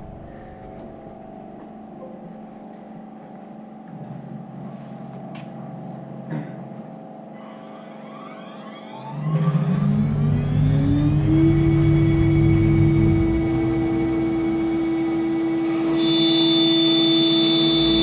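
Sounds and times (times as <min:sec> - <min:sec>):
rising machine whines: 0:00.0 - 0:01.9, 0:07.3 - 0:18.0
machine humming: 0:00.0 - 0:18.0.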